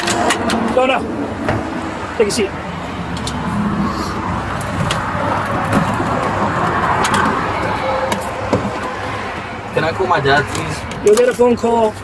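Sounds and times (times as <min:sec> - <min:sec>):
highway traffic passing: 0:00.0 - 0:12.0.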